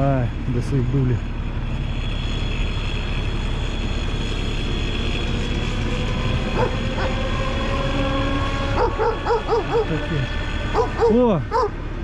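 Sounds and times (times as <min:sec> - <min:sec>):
truck engine running: 0:00.0 - 0:12.0
dog barking: 0:06.6 - 0:07.2, 0:08.8 - 0:10.0, 0:10.7 - 0:11.8.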